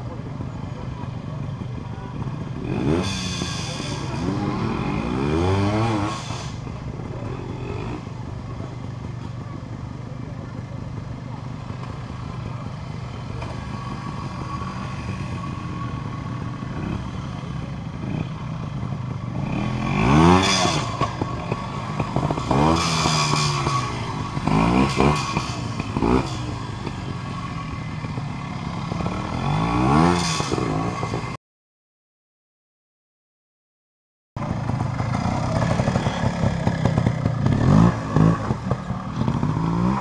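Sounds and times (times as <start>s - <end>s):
motorcycle engine revving: 0.0s - 31.4s, 34.4s - 40.0s.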